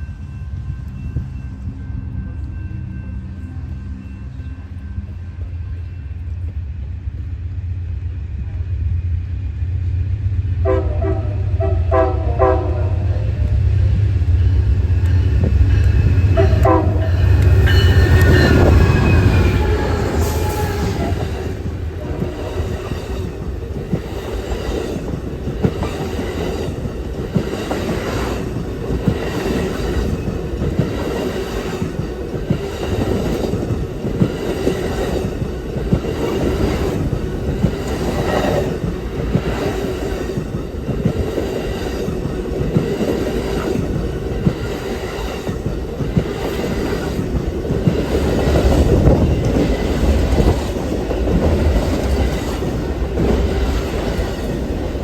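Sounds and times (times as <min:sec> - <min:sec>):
train wheels rumbling: 0:00.0 - 0:55.0.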